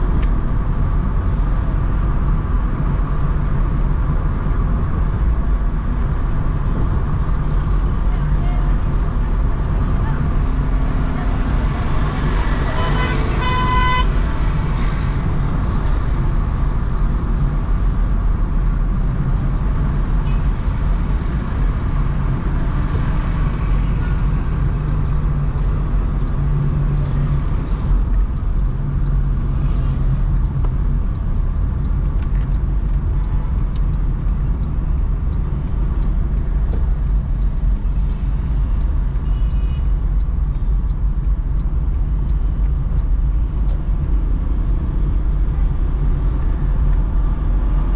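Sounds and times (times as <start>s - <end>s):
car engine and tyre rumble: 0.0s - 47.9s
car horn: 12.3s - 14.4s, 39.2s - 39.8s.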